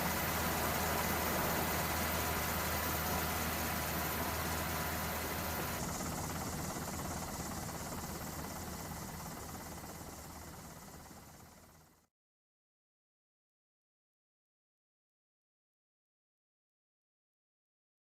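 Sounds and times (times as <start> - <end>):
thin steady tones: 0.0 - 11.9
mechanical drone with low hum: 0.0 - 12.0.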